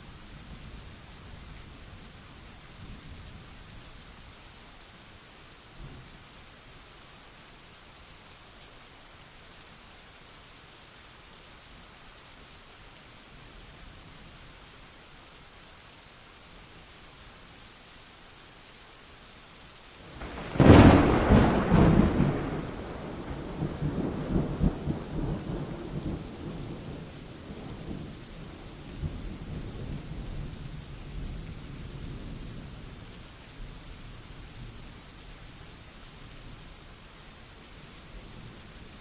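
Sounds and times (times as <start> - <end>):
steady rain: 0.0 - 39.0
rolling thunder: 20.1 - 28.2
sharp thunderclap: 20.2 - 26.6.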